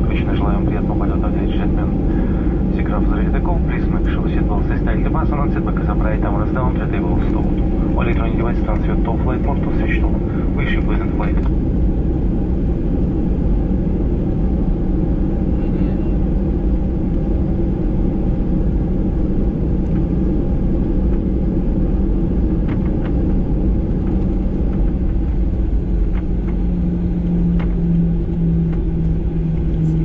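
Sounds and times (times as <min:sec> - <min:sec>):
airplane cabin engine rumble: 0:00.0 - 0:30.0
engine hum: 0:00.0 - 0:30.0.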